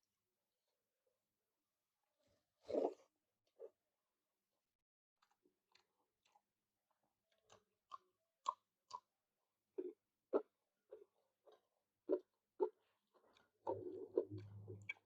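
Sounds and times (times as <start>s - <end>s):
person chewing food: 5.2s - 9.1s, 9.8s - 15.0s.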